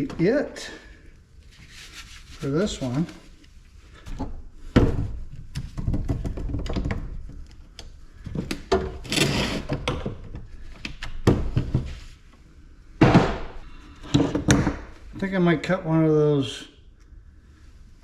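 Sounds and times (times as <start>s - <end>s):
heavy thunk: 13.0s - 13.6s.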